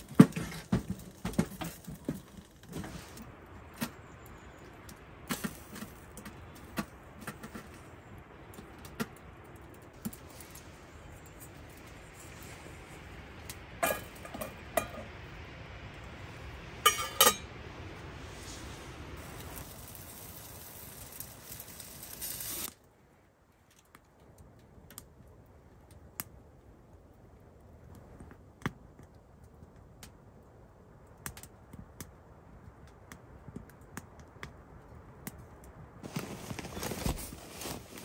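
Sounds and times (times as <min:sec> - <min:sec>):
steady hiss: 0:00.0 - 0:23.0
cookware clinking together: 0:16.8 - 0:17.4.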